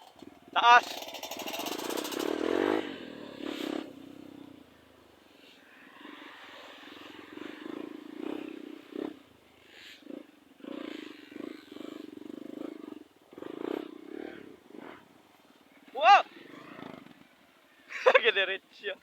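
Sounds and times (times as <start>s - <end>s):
motorcycle engine revving: 0.0s - 17.6s.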